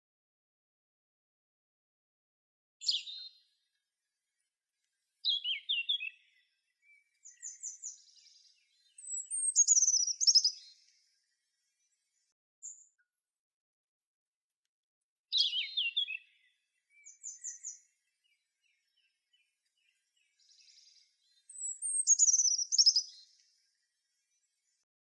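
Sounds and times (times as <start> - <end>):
birds singing high-pitched phrases: 2.8 - 3.4, 5.3 - 11.0, 15.3 - 19.0, 19.8 - 23.5.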